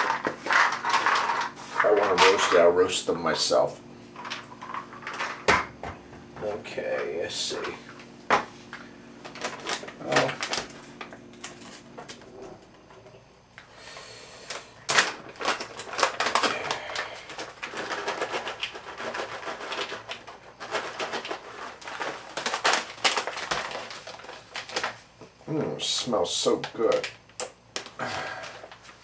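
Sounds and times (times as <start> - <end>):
nuts clattering into a bowl: 0.0 - 2.6, 14.9 - 24.9.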